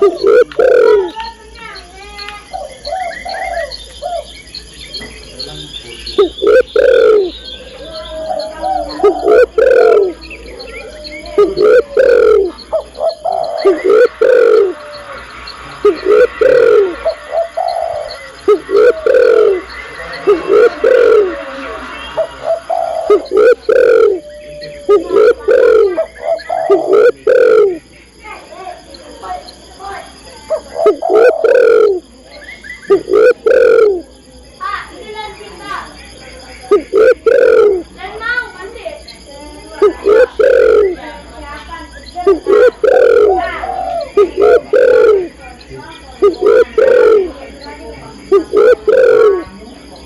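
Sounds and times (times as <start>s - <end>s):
dove cooing: 0.0s - 5.5s, 6.1s - 27.9s, 30.4s - 32.1s, 32.8s - 34.2s, 36.6s - 50.0s
small birds chirping: 0.0s - 50.0s.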